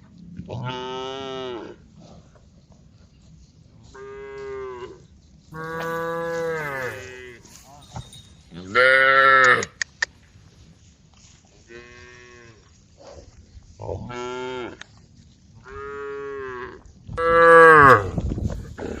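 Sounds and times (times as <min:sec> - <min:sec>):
cows mooing: 0:05.6 - 0:08.0.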